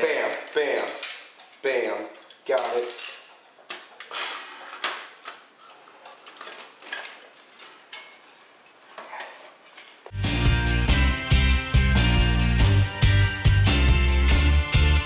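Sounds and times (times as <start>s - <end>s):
loud music with a beat: 10.1s - 15.0s.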